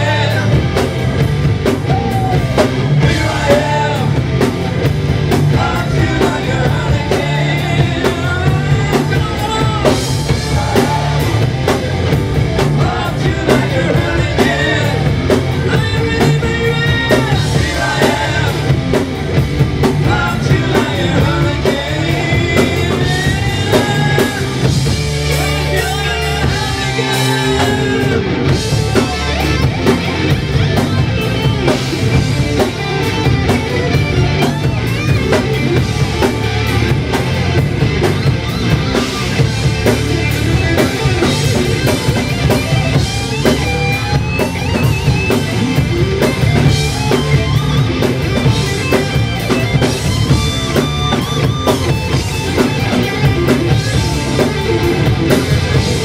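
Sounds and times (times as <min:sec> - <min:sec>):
lead singer singing: 0:00.0 - 0:00.9, 0:01.8 - 0:04.5, 0:05.3 - 0:19.0, 0:19.8 - 0:29.6
bass guitar: 0:00.0 - 0:56.0
drum kit: 0:00.0 - 0:56.0
electric guitars: 0:00.0 - 0:56.0.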